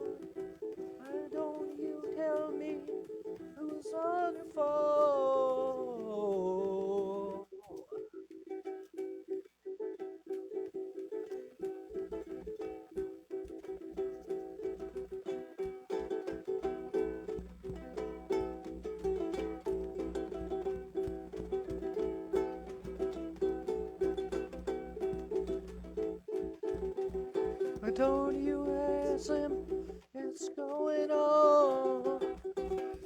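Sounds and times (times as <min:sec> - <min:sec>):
acoustic guitar strumming: 0:15.7 - 0:30.1.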